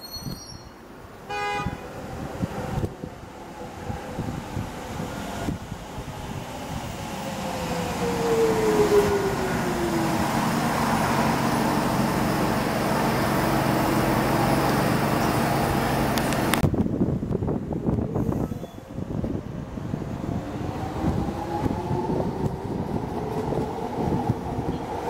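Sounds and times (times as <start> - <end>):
train rumble and rush: 0.0 - 25.0.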